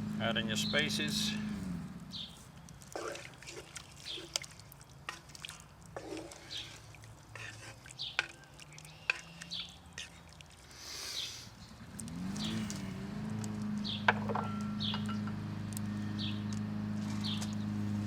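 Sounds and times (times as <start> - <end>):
pot of stock bubbling: 2.5 - 15.9.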